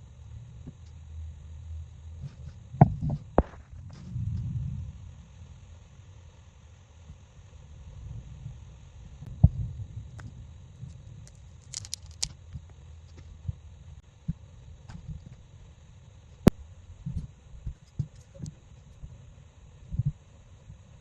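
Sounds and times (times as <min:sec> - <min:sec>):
low rumble: 0:00.0 - 0:06.6, 0:07.4 - 0:12.4.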